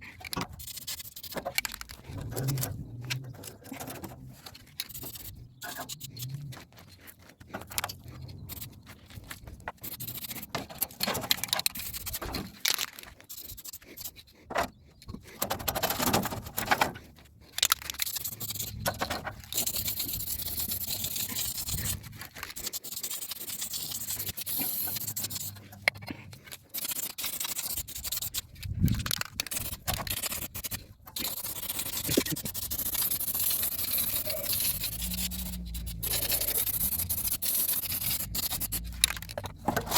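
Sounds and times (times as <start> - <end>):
clicks and scraping handling: 0.0 - 39.9
aerosol spray can hissing: 29.5 - 38.8.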